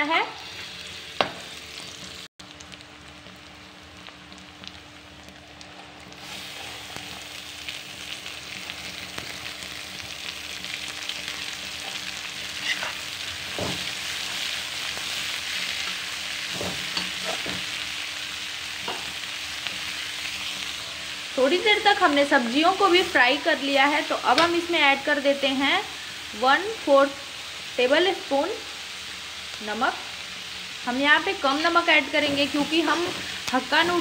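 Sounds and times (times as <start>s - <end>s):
vegetables sizzling in oil: 0.0s - 34.0s
metal spatula scraping pan: 12.6s - 13.1s.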